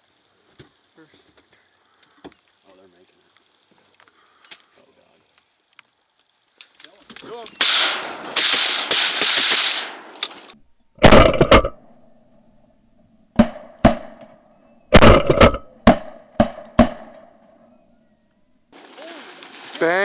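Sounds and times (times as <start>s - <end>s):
loud hiss: 7.2s - 10.6s
shotgun blasts: 7.5s - 11.4s.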